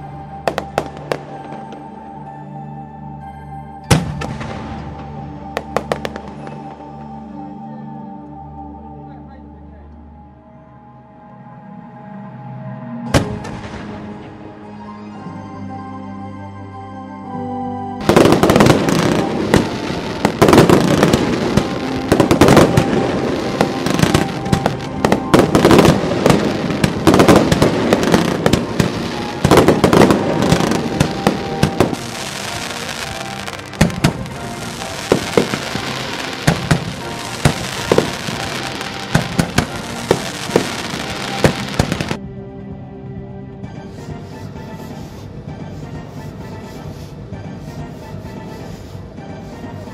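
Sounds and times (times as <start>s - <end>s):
fireworks bangs: 18.0s - 42.2s
fireworks crackling and hissing: 18.0s - 42.2s, 44.0s - 49.9s.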